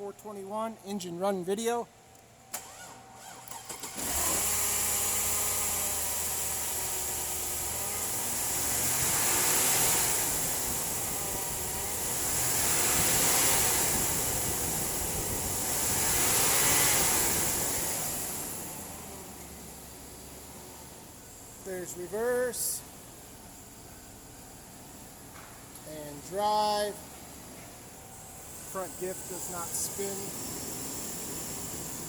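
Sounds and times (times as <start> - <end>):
car engine starting and revving: 2.6 - 22.1.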